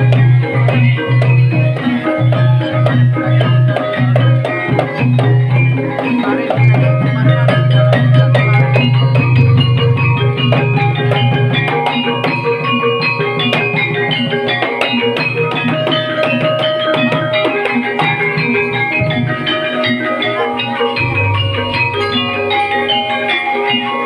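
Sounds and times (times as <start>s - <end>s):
drums: 0.0s - 24.0s
gamelan struck pitched notes: 0.0s - 24.0s.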